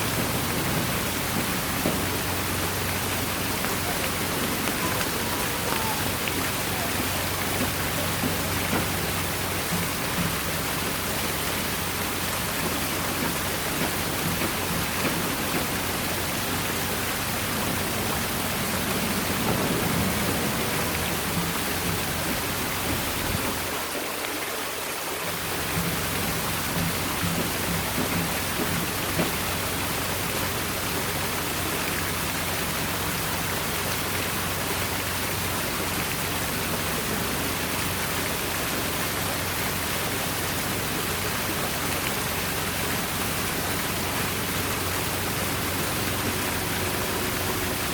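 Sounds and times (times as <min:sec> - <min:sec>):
waterfall splashing into pool: 0:00.0 - 0:47.9.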